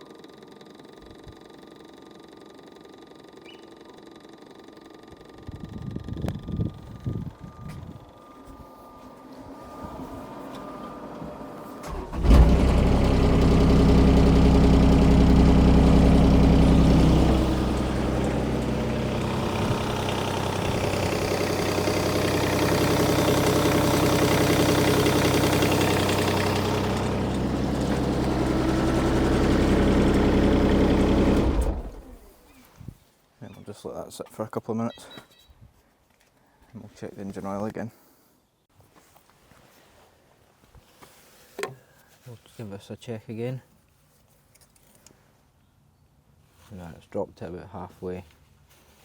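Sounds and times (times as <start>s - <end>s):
diesel engine starting and idling: 0.0s - 32.5s.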